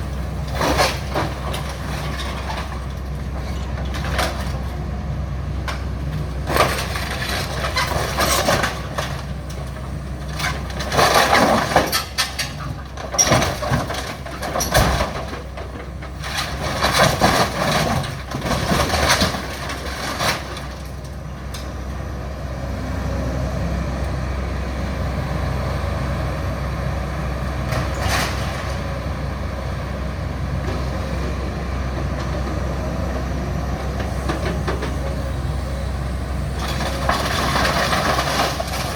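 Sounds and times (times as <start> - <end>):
debris crashing and scraping: 0.0 - 4.8, 5.6 - 21.7, 27.6 - 29.1, 36.5 - 38.9
excavator engine running: 0.0 - 38.9.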